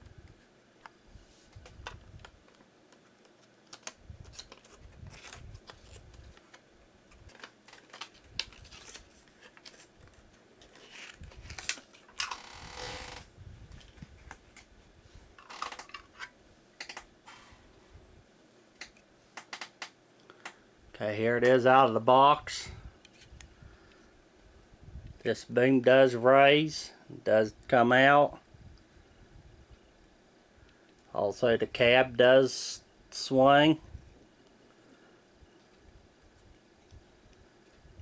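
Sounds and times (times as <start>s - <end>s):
packaging clicks and rustles: 1.5s - 14.7s, 15.4s - 17.1s.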